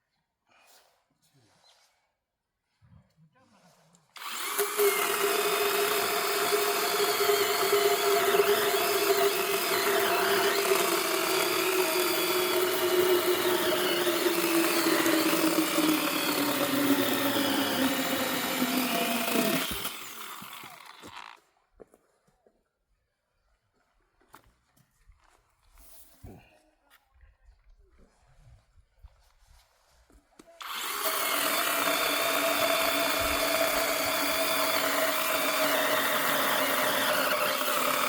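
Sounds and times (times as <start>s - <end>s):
power tool motor running: 4.2s - 21.4s, 30.6s - 38.0s.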